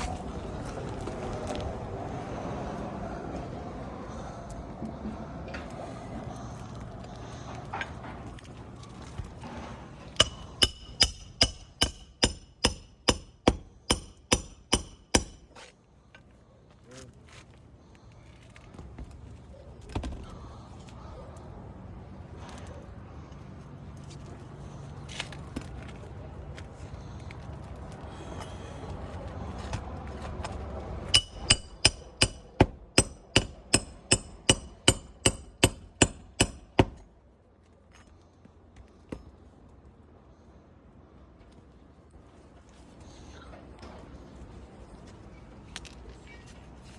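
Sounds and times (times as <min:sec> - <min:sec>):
hammer driving nails: 0:10.2 - 0:15.6, 0:31.1 - 0:37.0.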